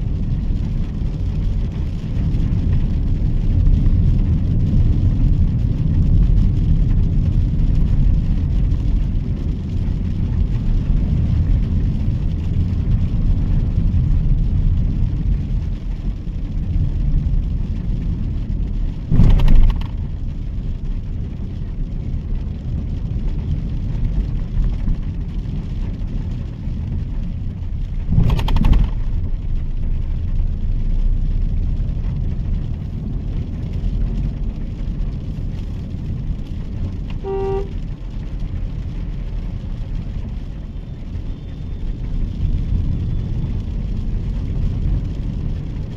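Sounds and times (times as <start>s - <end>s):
car engine rumble: 0.0s - 45.9s
tyres on wet roads: 0.0s - 45.9s
short loud noises: 19.1s - 20.1s.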